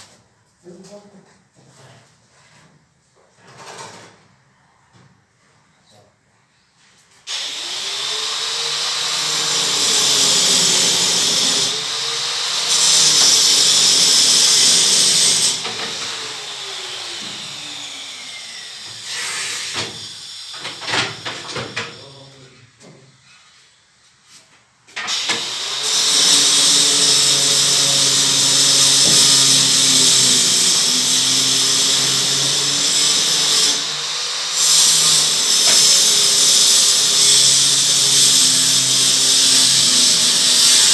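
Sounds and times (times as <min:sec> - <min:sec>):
power drill running: 0:07.3 - 0:22.0, 0:25.1 - 0:40.9
drill knocks: 0:07.4 - 0:19.1, 0:25.0 - 0:40.9.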